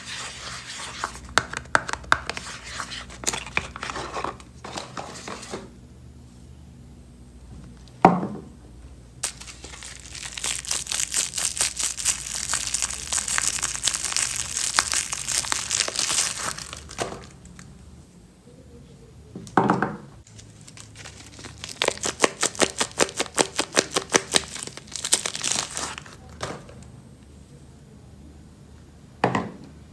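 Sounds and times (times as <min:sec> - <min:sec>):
soap wrappers crinkling and tearing: 0:09.2 - 0:17.7, 0:20.3 - 0:26.2.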